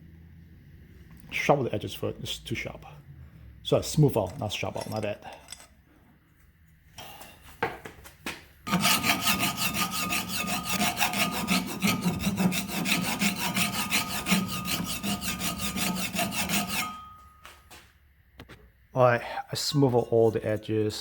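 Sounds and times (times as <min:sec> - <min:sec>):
rasping scrape on aluminum: 0:08.7 - 0:17.2.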